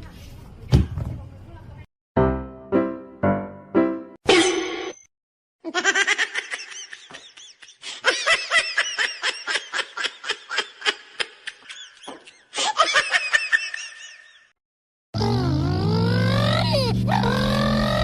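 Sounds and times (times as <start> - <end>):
person laughing hard: 5.7 - 14.5.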